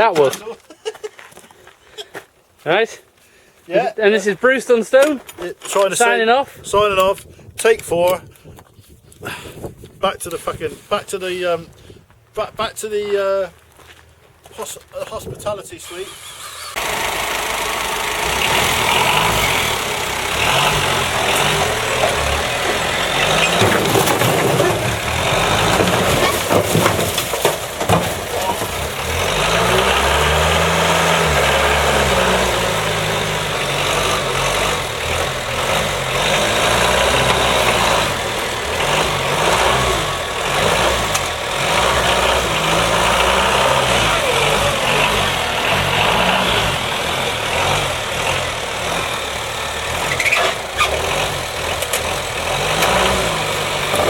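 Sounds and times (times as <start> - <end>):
engine revving: 15.9 - 54.0.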